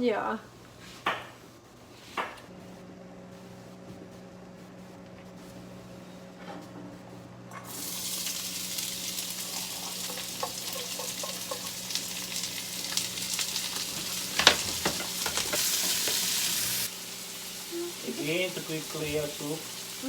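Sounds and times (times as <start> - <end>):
vegetables sizzling in a frying pan: 7.6 - 20.0.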